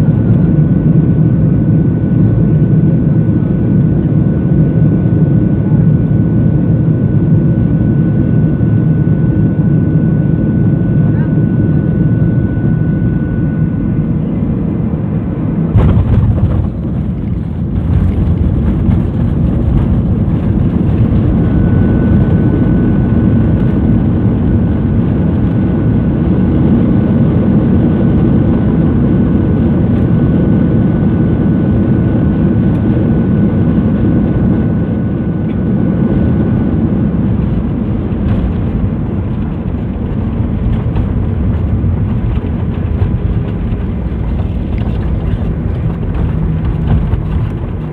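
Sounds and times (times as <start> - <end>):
airliner cabin engine rumble: 0.0 - 47.9.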